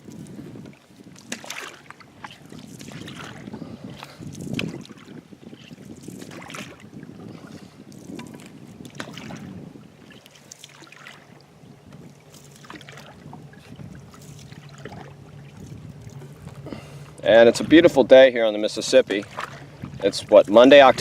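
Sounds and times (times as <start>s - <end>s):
paddle strokes through water: 0.0s - 21.0s
water splashing and dripping: 1.2s - 3.5s, 8.0s - 11.4s, 12.3s - 16.6s, 19.1s - 21.0s.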